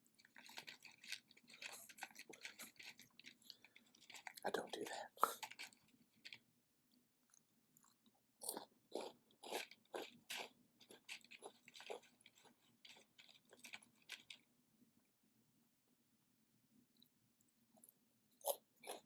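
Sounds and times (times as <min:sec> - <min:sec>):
person chewing crunchy food: 0:00.0 - 0:06.4, 0:07.3 - 0:14.4, 0:17.7 - 0:19.0.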